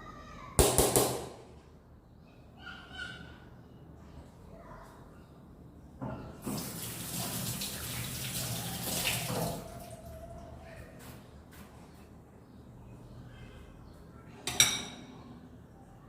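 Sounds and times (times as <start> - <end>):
tap water running into sink: 6.4 - 9.7.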